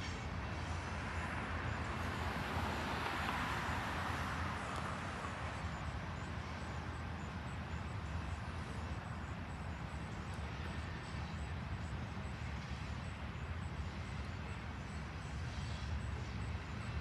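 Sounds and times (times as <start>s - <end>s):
freight train rumbling past: 0.0s - 17.0s
road traffic tyre hiss: 0.0s - 17.0s.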